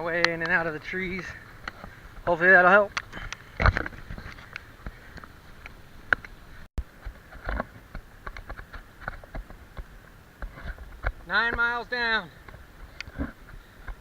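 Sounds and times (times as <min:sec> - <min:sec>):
muffled footsteps on a trail: 0:00.0 - 0:14.0.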